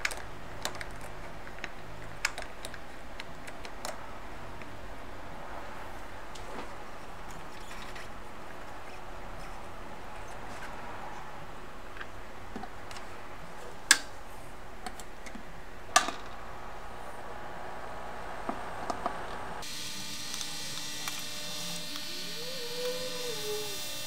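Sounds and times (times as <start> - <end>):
hiss with high whining tones: 19.6 - 24.0.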